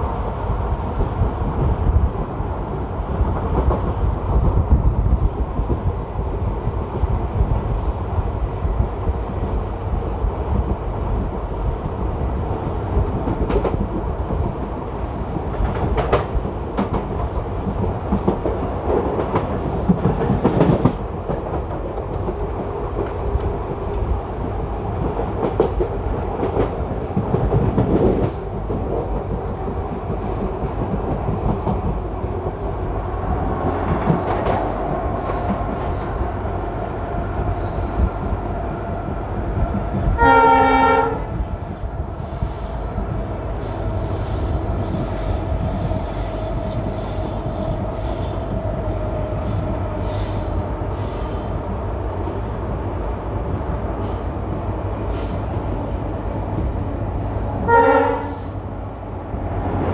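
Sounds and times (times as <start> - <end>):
train coach rumble: 0.0 - 59.9
train horn: 40.2 - 41.4, 57.6 - 58.4.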